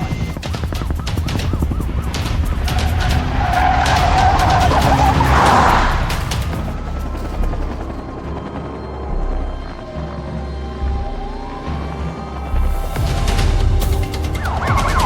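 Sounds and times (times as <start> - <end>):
sharp cracks: 0.0 - 8.0
tyres squealing: 0.0 - 8.2
car speeding: 0.0 - 15.0
tense score music: 0.0 - 15.0.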